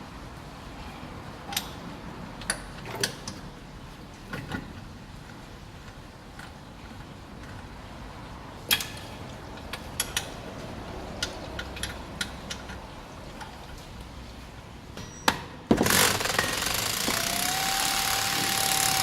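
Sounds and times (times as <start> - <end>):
power tool hammering rattle: 15.7 - 19.0.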